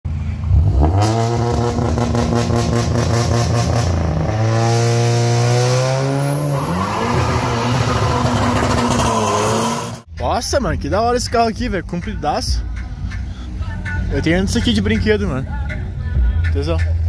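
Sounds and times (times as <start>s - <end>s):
car engine revving: 0.1s - 10.1s
high rising whine: 1.5s - 10.1s.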